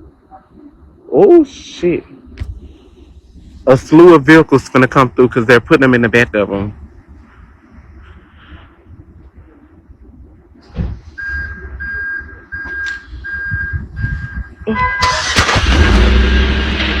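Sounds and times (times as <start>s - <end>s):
engine rumble: 0.0s - 17.0s
reversing alarm beeping: 11.2s - 15.3s.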